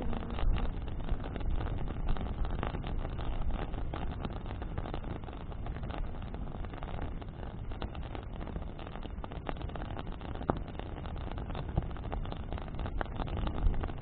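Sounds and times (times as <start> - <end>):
wind buffeting microphone: 0.0 - 5.2
bonfire crackling: 0.0 - 14.0.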